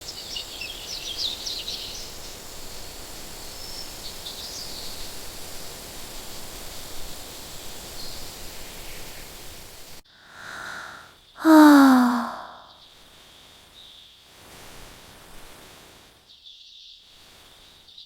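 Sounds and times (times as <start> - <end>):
steady hiss: 0.0 - 11.0, 14.3 - 16.2, 17.2 - 17.8
birds chirping: 10.4 - 11.0.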